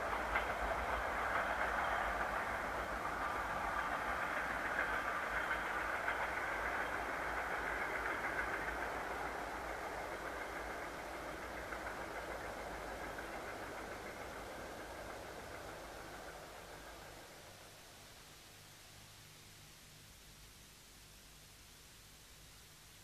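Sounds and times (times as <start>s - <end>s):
diesel freight train climbing: 0.0s - 18.0s.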